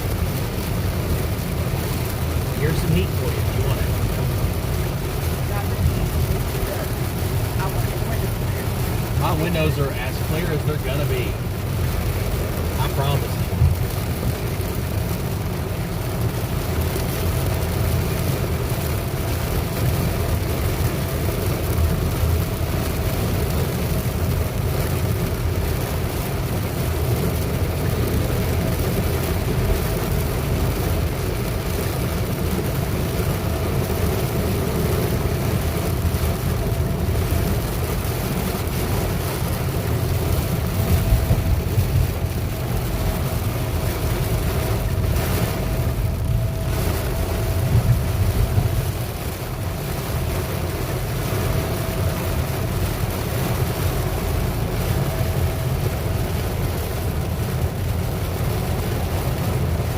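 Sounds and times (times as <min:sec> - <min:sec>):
road and engine rumble: 0:00.0 - 0:59.9.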